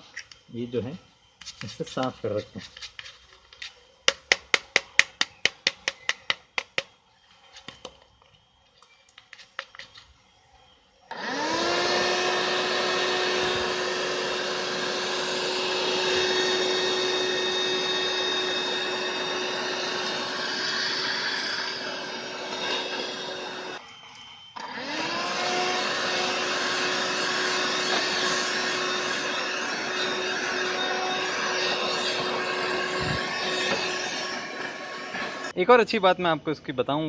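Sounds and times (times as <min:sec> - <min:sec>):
handheld vacuum cleaner motor whine: 0:07.1 - 0:35.6.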